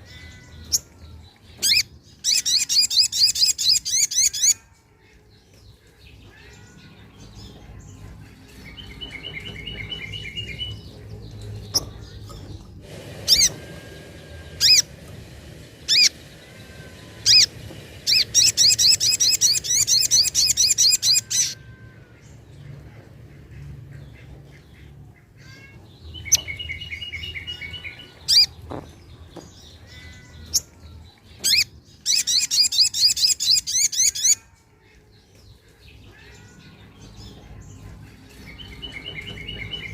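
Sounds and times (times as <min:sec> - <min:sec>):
bird singing: 0:00.0 - 0:39.9
bird high rapid trill: 0:12.8 - 0:21.8.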